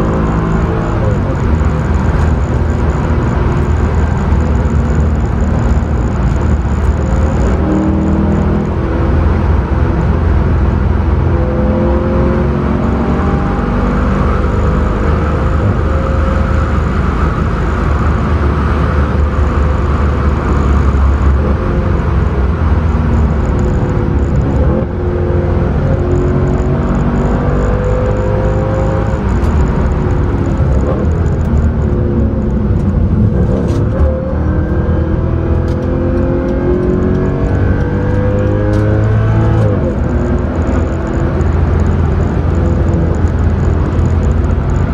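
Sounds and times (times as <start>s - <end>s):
car engine revving under load: 0.0s - 44.9s
tyre and road rumble: 0.0s - 44.9s.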